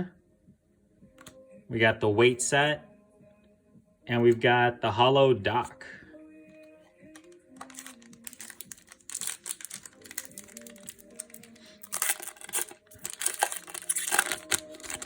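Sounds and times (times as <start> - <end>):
soft background music: 0.0 - 15.0
plastic wrapper crinkling and tearing: 7.1 - 15.0.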